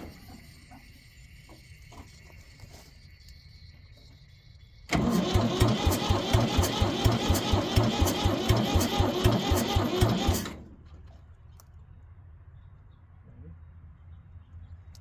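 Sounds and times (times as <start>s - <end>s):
diesel engine cranking: 4.8s - 11.2s.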